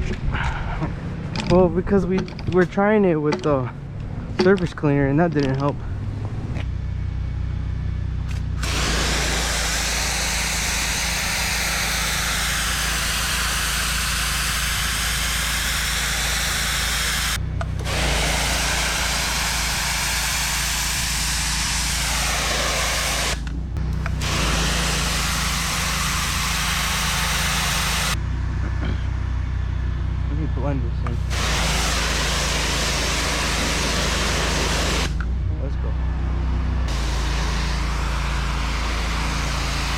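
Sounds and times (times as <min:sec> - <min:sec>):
pressure washer engine running: 0:08.2 - 0:28.2, 0:30.6 - 0:35.2, 0:36.9 - 0:39.9
pressure washer spraying concrete: 0:08.3 - 0:28.2, 0:31.2 - 0:35.2, 0:36.9 - 0:39.9.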